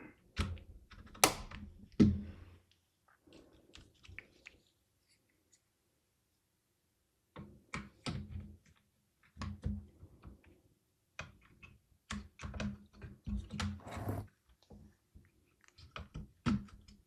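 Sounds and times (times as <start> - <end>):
small plastic clicks and knocks: 11.1 - 13.8, 15.7 - 17.0.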